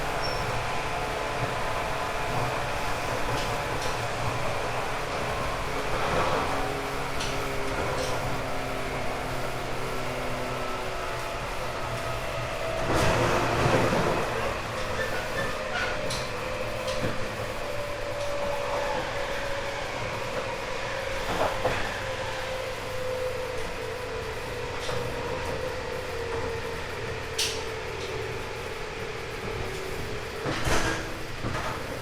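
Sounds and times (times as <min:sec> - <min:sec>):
train motor whine: 0:00.0 - 0:32.0
train rolling rumble: 0:00.0 - 0:32.0.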